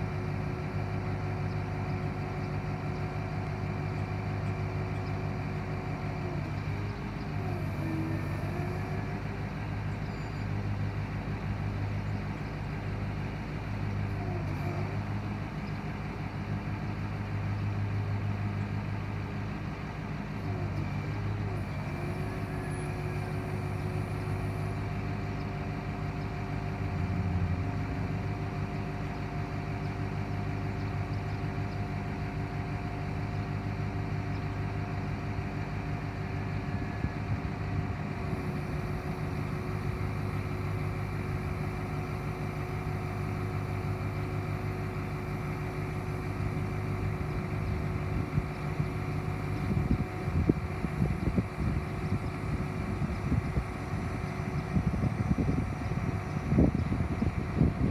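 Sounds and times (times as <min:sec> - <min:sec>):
truck engine running: 0:00.0 - 0:57.9.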